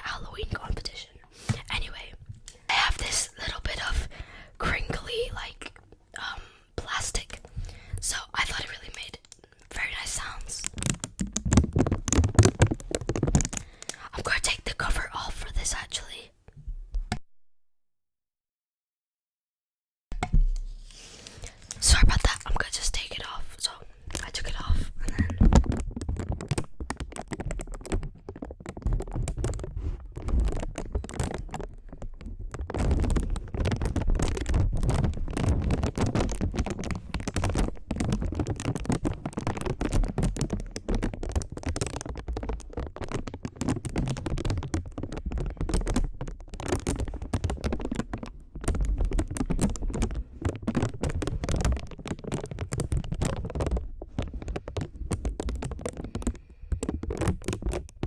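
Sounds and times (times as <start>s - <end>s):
tapping and scratching on microphone: 0.0s - 17.2s, 20.1s - 58.0s
soft low thumps: 10.2s - 13.9s, 20.1s - 20.9s.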